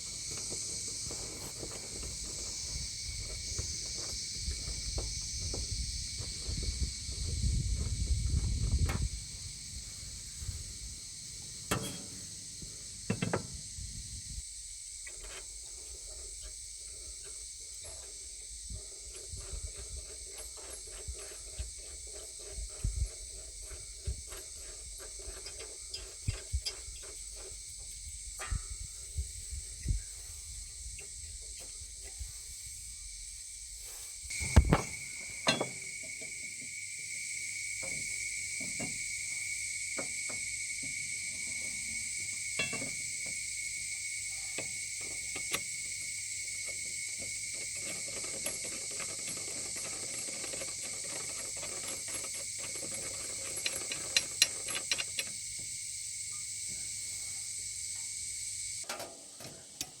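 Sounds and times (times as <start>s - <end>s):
steady high hiss: 0.0s - 60.0s
run of clicks: 46.6s - 55.4s
metal tools clinking: 47.8s - 55.4s.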